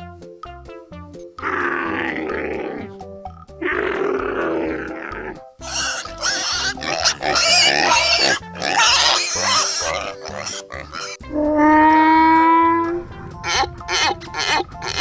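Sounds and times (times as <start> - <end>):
background music: 0.0 - 15.0
animal grunting: 1.4 - 3.0, 3.6 - 11.2, 13.4 - 15.0
animal squealing shrilly: 3.6 - 12.5, 13.4 - 15.0.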